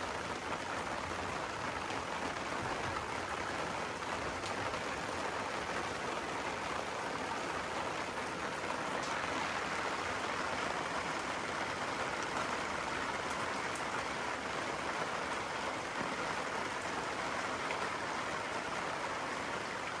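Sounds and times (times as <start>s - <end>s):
rain falling steadily: 0.0s - 20.0s.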